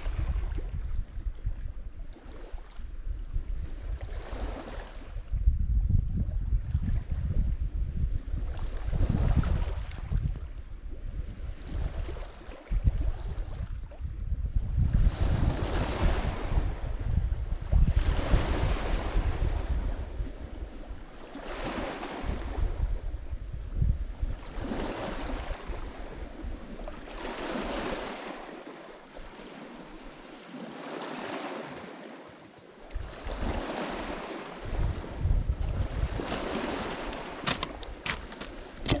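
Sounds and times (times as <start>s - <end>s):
waves breaking on shore: 0.0s - 0.8s, 2.0s - 2.9s, 3.7s - 5.2s, 11.5s - 13.9s, 15.0s - 23.3s, 24.0s - 39.0s
wind buffeting microphone: 0.0s - 28.4s, 32.8s - 39.0s.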